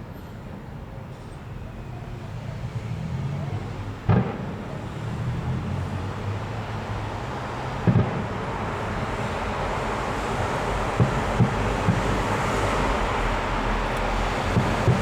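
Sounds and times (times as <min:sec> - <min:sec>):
fireworks booming: 0:04.0 - 0:05.0, 0:07.7 - 0:09.3, 0:10.4 - 0:15.0.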